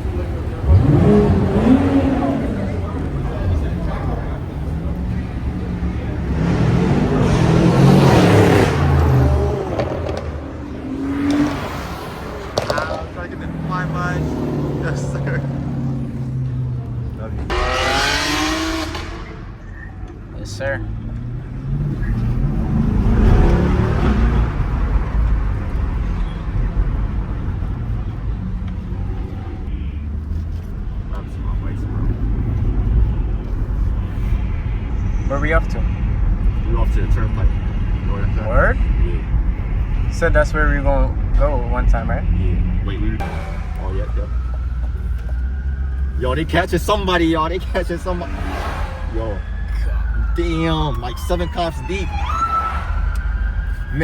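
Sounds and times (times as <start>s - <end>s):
car engine accelerating hard: 0.0s - 19.9s, 20.6s - 29.5s.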